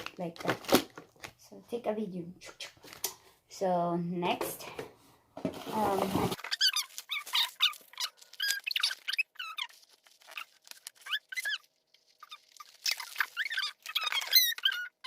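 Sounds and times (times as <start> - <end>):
packaging rustling and crackling: 0.0 - 1.4, 5.6 - 15.0
foam packing squeaking: 5.6 - 15.0.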